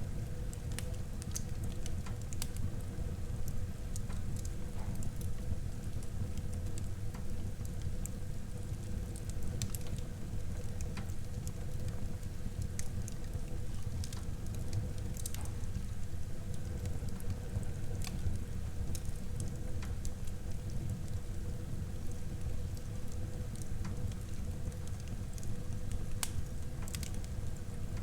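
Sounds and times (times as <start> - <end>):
fire burning: 0.0 - 28.0
fire crackling and popping: 0.1 - 28.0.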